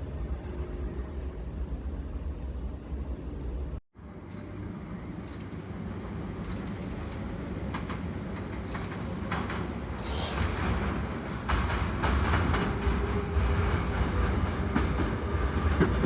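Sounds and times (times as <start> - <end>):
subway train rumble: 0.0 - 16.0
wheel clicks over rail joints: 4.2 - 16.0.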